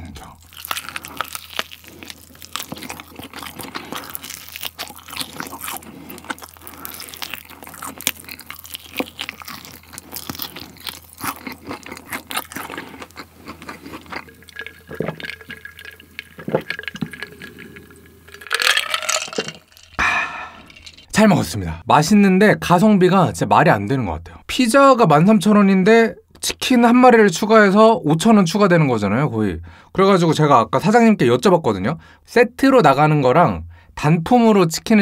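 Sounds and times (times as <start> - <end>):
wet chewing and smacking: 0.4 - 19.0
gulps of a drink: 12.8 - 19.6.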